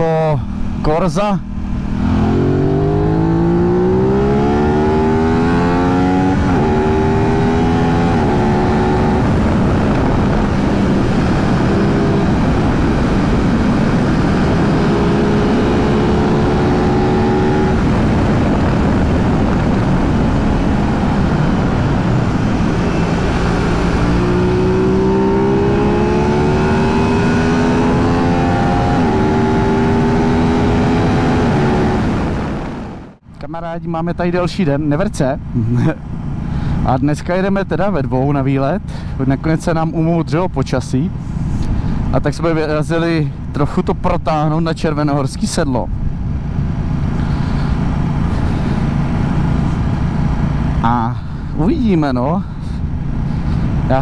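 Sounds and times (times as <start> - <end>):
motorcycle engine accelerating: 1.4 - 33.2, 46.1 - 51.6
wind rush: 1.6 - 33.3.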